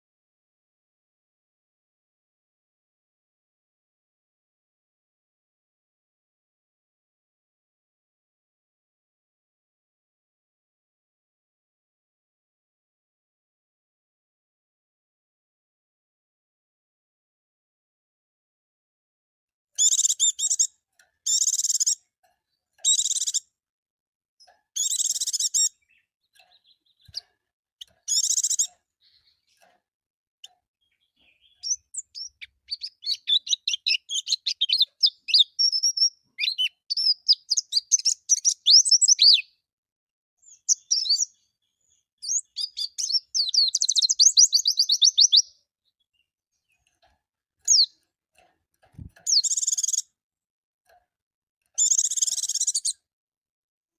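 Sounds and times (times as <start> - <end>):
bird harsh chirping calls: 19.8 - 22.1, 22.8 - 23.5, 24.8 - 29.7, 30.4 - 39.5, 40.4 - 46.8, 47.7 - 48.0, 49.0 - 50.1, 51.8 - 53.0
bird rapid twittering song: 19.8 - 22.1, 22.8 - 23.5, 24.4 - 29.7, 30.4 - 39.6, 40.4 - 47.0, 47.6 - 48.1, 48.9 - 50.1, 51.7 - 53.0.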